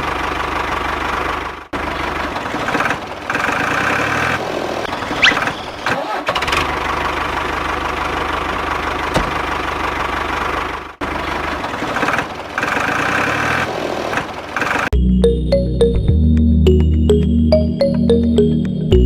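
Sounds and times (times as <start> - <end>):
engine idling with clatter: 0.0 - 14.9
electronic music: 14.9 - 19.0.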